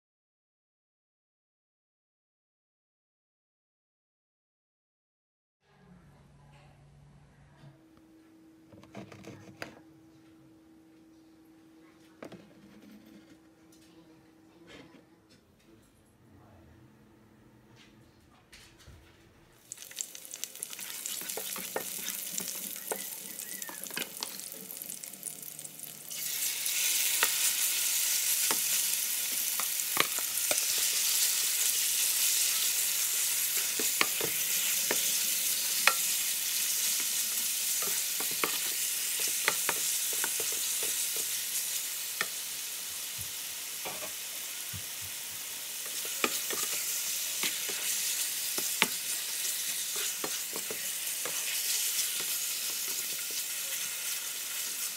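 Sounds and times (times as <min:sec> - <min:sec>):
chicken sizzling: 0:19.6 - 0:54.9
garlic frying in oil: 0:19.6 - 0:54.9
spatula scraping and tapping pan: 0:20.7 - 0:24.5, 0:28.4 - 0:31.3, 0:32.6 - 0:41.4, 0:45.8 - 0:53.5.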